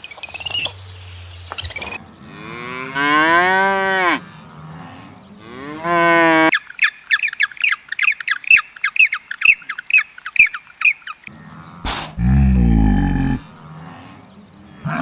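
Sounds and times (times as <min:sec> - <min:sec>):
high falling bird calls: 0:00.0 - 0:02.7, 0:06.5 - 0:15.0
cow mooing: 0:02.2 - 0:06.5, 0:11.4 - 0:14.2, 0:14.8 - 0:15.0.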